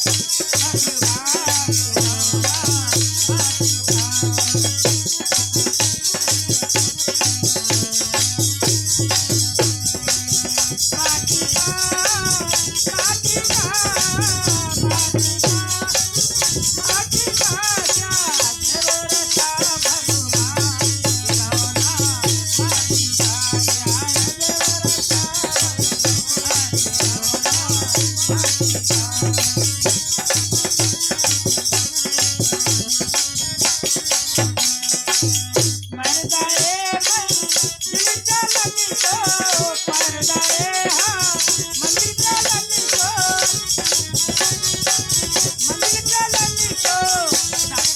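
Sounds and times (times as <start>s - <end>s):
person singing: 0.0s - 5.4s, 10.0s - 30.9s, 35.9s - 47.9s
shaken rattle percussion: 0.0s - 47.9s.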